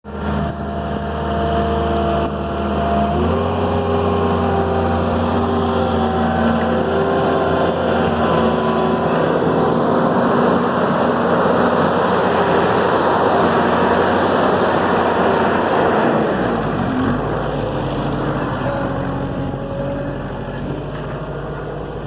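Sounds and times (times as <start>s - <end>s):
engine running steadily: 0.0s - 22.0s
rough rushing noise: 5.0s - 19.2s.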